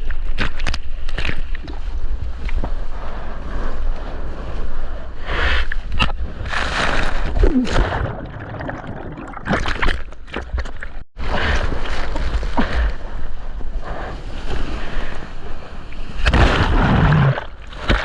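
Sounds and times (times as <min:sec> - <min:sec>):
wind rumbling on microphone: 0:00.0 - 0:09.5, 0:10.6 - 0:18.0
seawater splashing and rushing: 0:06.3 - 0:13.5, 0:14.1 - 0:18.0.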